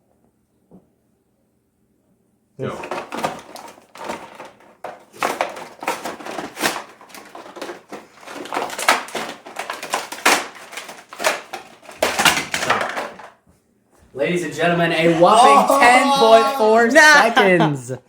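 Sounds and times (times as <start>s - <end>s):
cardboard and plastic tearing: 2.7s - 13.4s.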